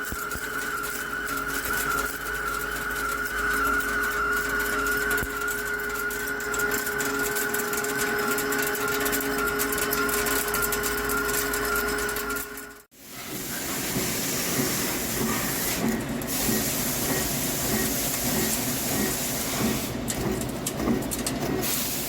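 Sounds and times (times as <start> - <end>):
crackle of metal chips: 0.0 - 12.8
lathe machine tone: 0.0 - 22.0.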